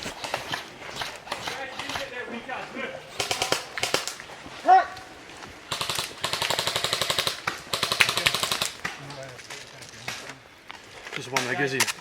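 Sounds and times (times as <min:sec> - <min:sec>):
airsoft guns firing bursts: 0:00.0 - 0:02.4, 0:03.1 - 0:04.4, 0:05.7 - 0:09.2
person shouting: 0:04.6 - 0:05.0.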